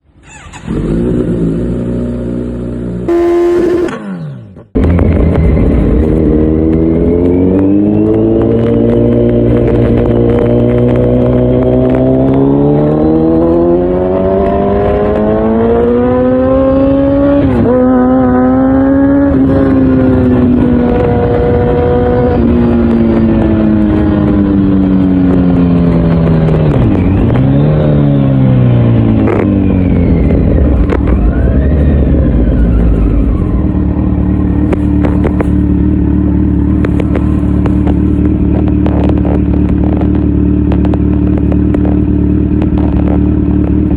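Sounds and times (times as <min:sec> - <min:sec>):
motorcycle engine accelerating: 0:00.1 - 0:43.9
motorcycle engine idling: 0:32.0 - 0:43.9.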